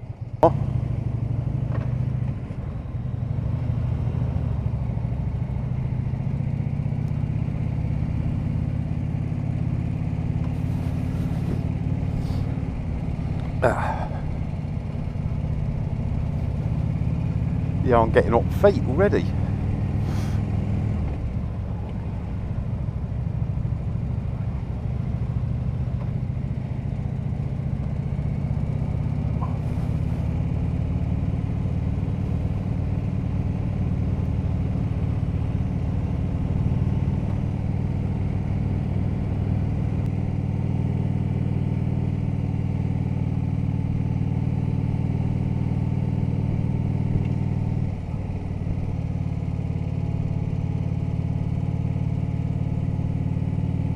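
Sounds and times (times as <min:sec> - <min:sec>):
motorcycle engine cruising: 0:00.0 - 0:53.9.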